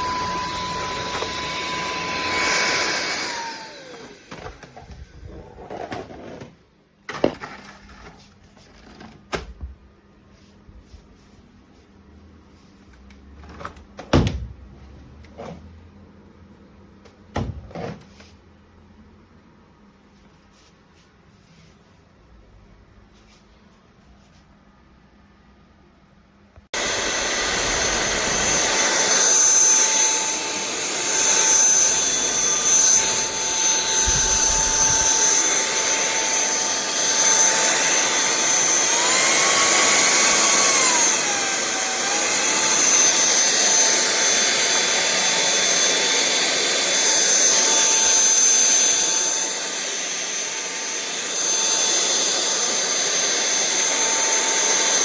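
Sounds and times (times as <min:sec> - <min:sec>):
stick vacuum whining: 0:00.0 - 0:06.5, 0:26.8 - 0:55.0.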